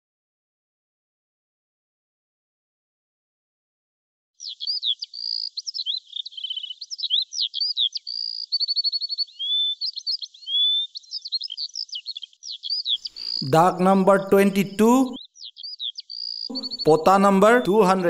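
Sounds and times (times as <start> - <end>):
songbird singing trills: 4.4 - 18.0.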